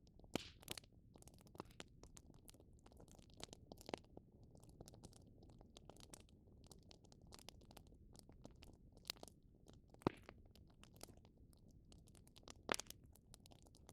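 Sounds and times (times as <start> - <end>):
wood fire crackling: 0.3 - 0.8.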